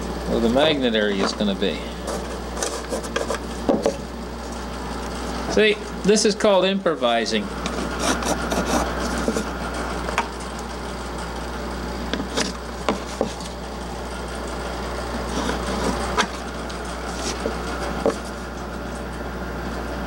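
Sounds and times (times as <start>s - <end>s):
steady low hum: 0.0s - 20.0s
pencil scratching on plywood: 2.0s - 3.4s, 7.7s - 9.5s, 15.2s - 16.4s, 17.1s - 18.3s.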